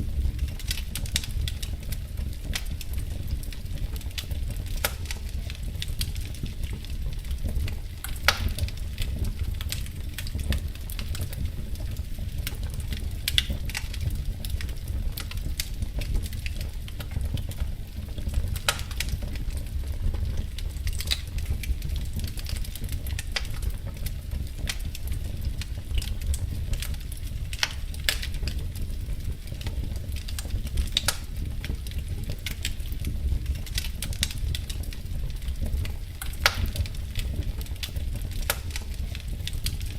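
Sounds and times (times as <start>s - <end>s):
loud fire pops: 0.0s - 39.9s
wood fire crackling: 0.0s - 39.9s.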